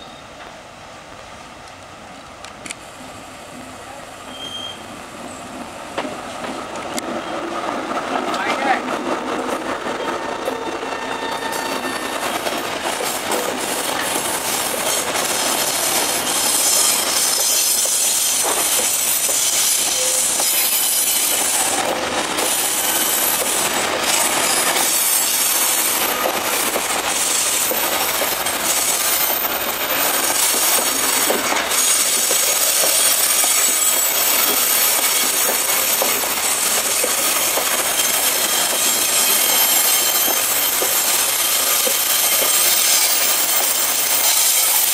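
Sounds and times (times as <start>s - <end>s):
high metallic wheel squeal: 4.3s - 4.9s, 10.0s - 12.2s, 14.9s - 21.6s, 27.2s - 44.9s
freight train wheels clattering on rails: 5.5s - 44.9s.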